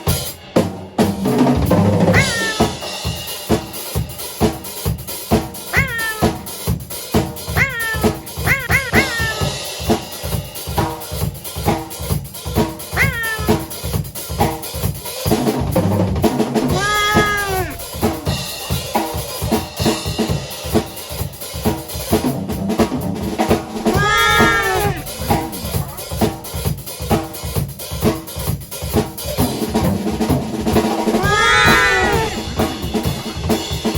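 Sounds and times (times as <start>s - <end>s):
drum kit beat: 0.0s - 22.4s
cat meowing: 2.1s - 2.7s, 5.7s - 6.5s, 7.5s - 9.6s, 12.9s - 13.8s, 16.7s - 18.8s, 23.8s - 26.5s, 31.0s - 32.5s.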